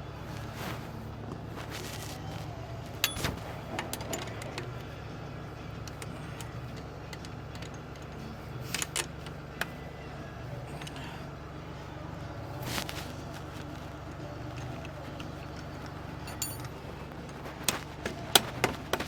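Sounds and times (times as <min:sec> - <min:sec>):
low machine hum: 0:00.0 - 0:19.0
metal tools clinking: 0:03.0 - 0:04.8, 0:14.4 - 0:19.0.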